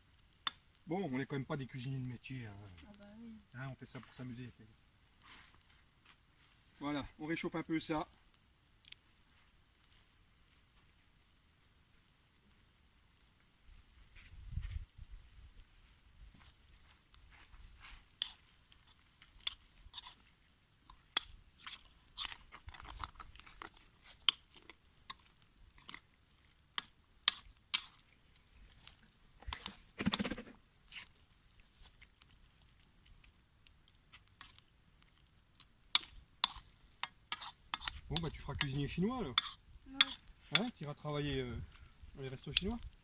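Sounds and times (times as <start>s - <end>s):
faint bird chirps: 0.0s - 0.8s, 12.5s - 13.8s, 24.3s - 25.4s, 32.0s - 33.4s, 39.6s - 40.8s
utensil scraping a wok: 17.9s - 26.0s, 27.2s - 28.0s, 35.9s - 40.7s.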